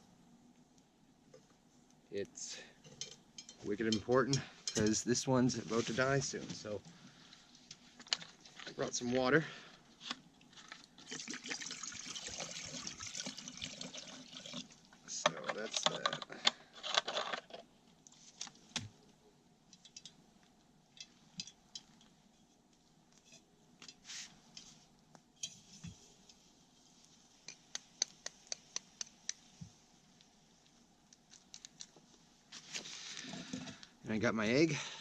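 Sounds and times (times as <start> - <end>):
camp cooking gear clinking: 2.8 - 5.1, 15.1 - 17.6, 20.9 - 22.2.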